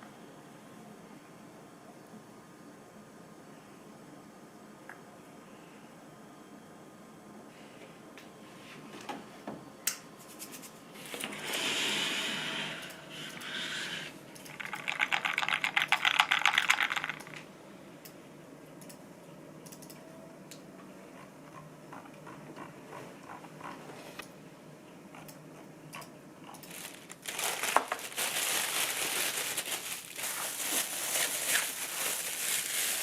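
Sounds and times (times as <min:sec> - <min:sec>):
rapid clicking and rattling: 0:14.4 - 0:17.4.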